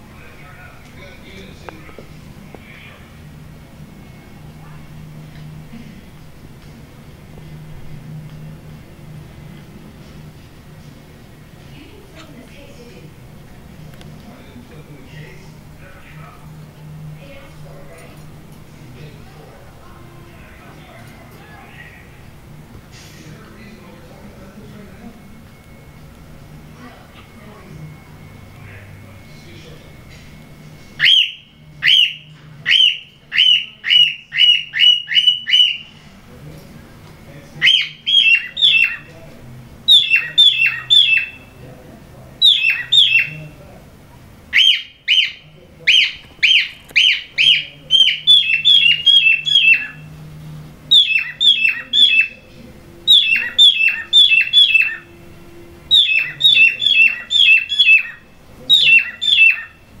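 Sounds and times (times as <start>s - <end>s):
cockatiels squawking: 31.0s - 35.9s, 37.6s - 39.1s, 39.9s - 41.5s, 42.4s - 43.4s, 44.5s - 50.1s, 50.9s - 52.4s, 53.1s - 55.1s, 55.9s - 59.8s.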